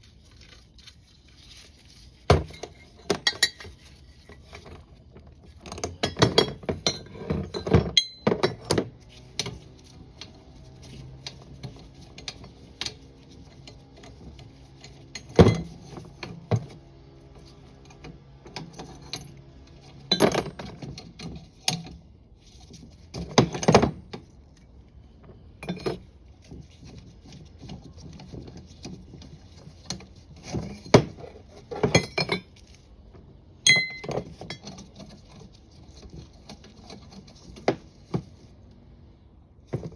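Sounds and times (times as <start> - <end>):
metal parts clinking together: 2.3 - 4.8, 17.9 - 22.0, 29.8 - 32.8, 33.6 - 35.3.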